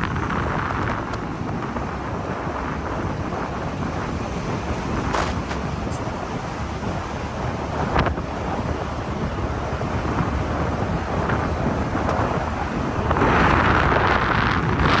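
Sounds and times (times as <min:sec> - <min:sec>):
low rumble of moving ride: 0:00.0 - 0:15.0
wind buffeting microphone: 0:00.0 - 0:15.0.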